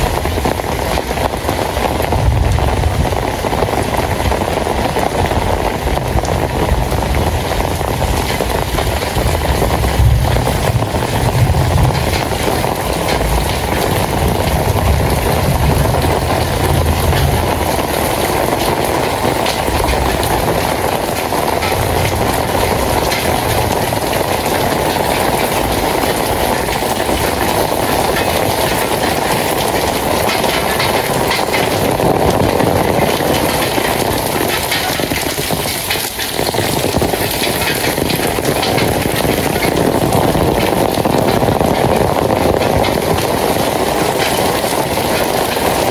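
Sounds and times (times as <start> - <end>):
steady rain hiss: 0.0 - 45.9
low rumble: 1.8 - 29.2.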